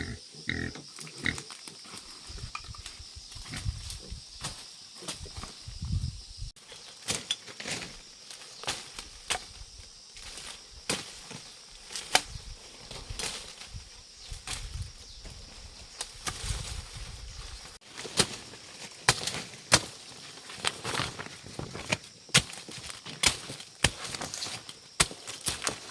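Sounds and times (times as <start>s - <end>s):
machete chopping brush: 10.5s - 12.4s, 16.0s - 16.7s, 18.0s - 20.1s, 22.3s - 25.9s.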